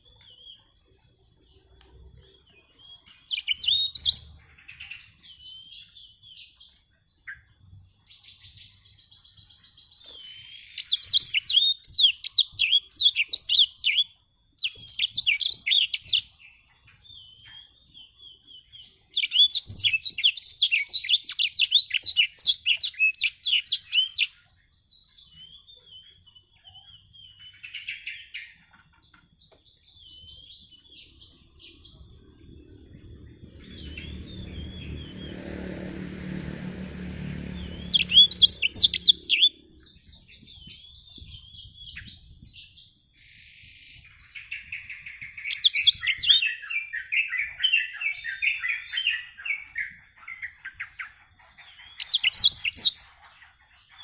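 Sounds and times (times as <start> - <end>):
canary singing trilled phrases: 0.0 - 35.2, 37.6 - 54.0
low rumble: 30.6 - 42.6.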